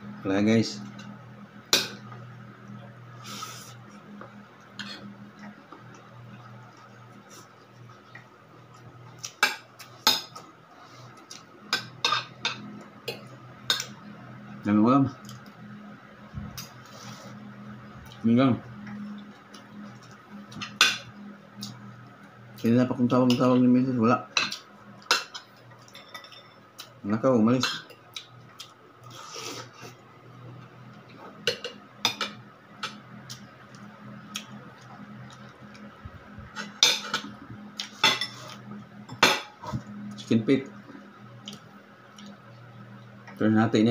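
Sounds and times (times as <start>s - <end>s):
low steady hum: 0.0s - 43.9s
cutlery clinking on plates: 24.4s - 26.6s, 37.9s - 39.5s
cutlery clinking on a plate: 38.0s - 39.5s.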